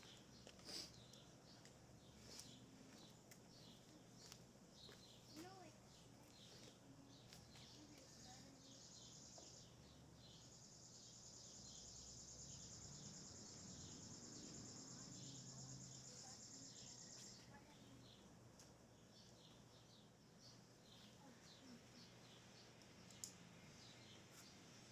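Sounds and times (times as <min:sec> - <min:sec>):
bird chirps: 0:00.0 - 0:18.2.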